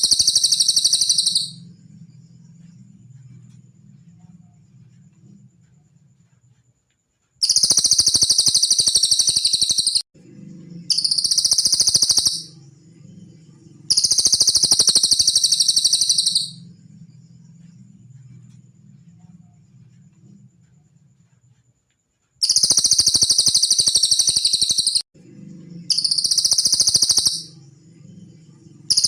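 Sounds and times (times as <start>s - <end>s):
songbird high-pitched trills: 0.0s - 1.8s, 7.4s - 10.0s, 10.8s - 12.7s, 13.4s - 16.8s, 22.4s - 25.0s, 25.8s - 27.7s, 28.4s - 29.0s
faint low hum: 0.0s - 8.1s, 10.2s - 23.1s, 25.2s - 29.0s.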